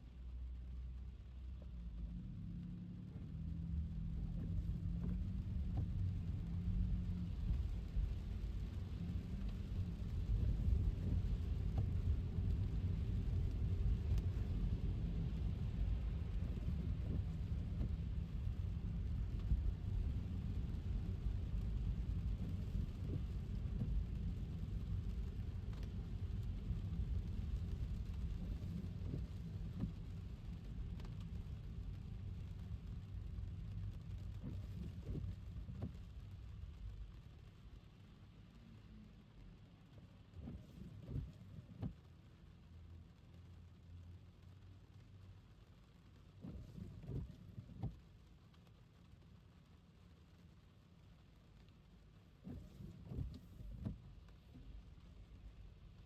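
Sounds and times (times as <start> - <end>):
rain: 0.0 - 56.0.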